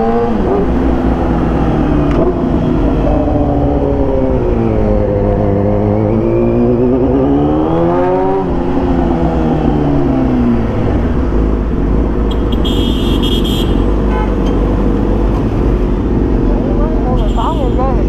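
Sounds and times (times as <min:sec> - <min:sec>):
motorcycle engine revving: 0:00.0 - 0:17.3.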